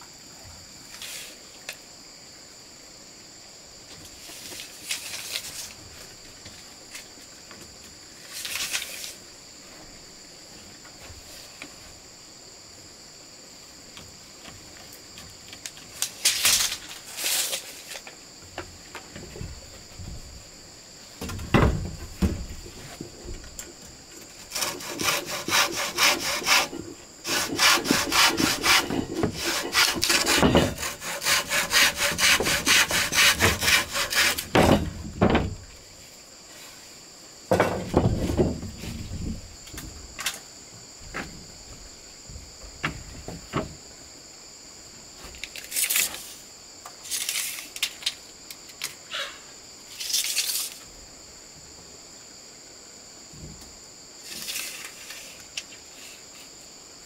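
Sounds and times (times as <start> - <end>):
high insect buzz: 0.0 - 57.0
wood knocks and scrapes: 14.0 - 20.5, 21.1 - 35.8, 37.5 - 40.4, 41.0 - 43.9
hand saw cutting wood: 24.4 - 34.8.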